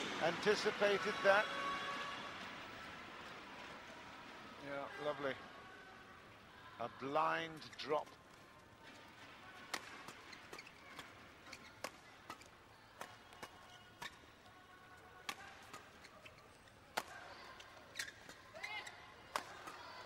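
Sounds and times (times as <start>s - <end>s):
racket striking shuttlecock: 9.6s - 14.3s, 15.2s - 17.3s, 19.3s - 19.8s.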